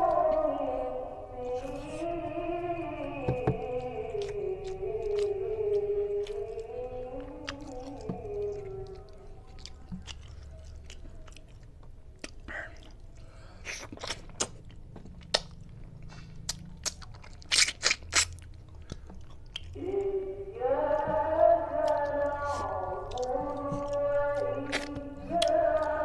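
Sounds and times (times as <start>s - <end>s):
wet chewing: 3.0s - 20.2s, 20.8s - 26.0s
lip smacks: 3.6s - 19.8s, 21.9s - 26.0s.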